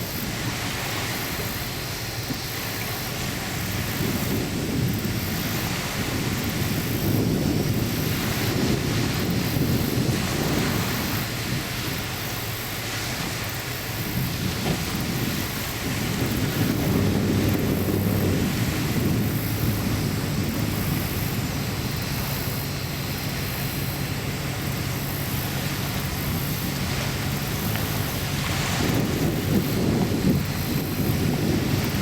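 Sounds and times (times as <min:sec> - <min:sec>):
wind noise on microphone: 0:00.0 - 0:32.0
deep engine drone: 0:13.8 - 0:32.0.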